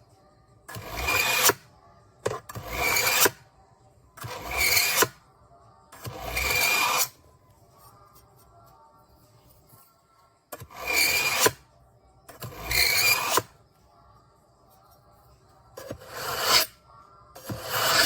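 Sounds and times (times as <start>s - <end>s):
knife rasping through sharpener: 0.7s - 1.7s, 2.3s - 3.4s, 4.2s - 5.2s, 6.0s - 7.2s, 10.6s - 11.6s, 12.3s - 13.6s, 15.8s - 16.8s, 17.4s - 18.0s.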